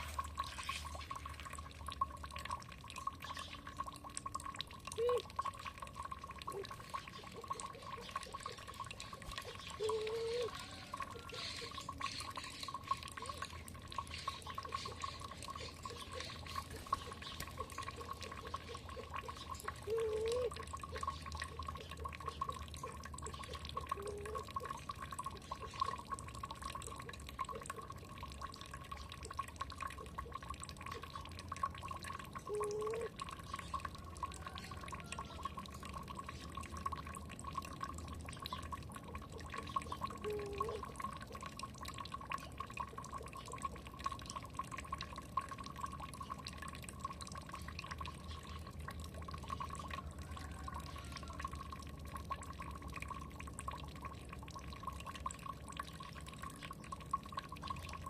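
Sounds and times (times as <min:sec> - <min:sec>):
water dripping and trickling: 0:00.0 - 0:58.0
low rising bird calls: 0:09.5 - 0:13.5, 0:19.4 - 0:21.1.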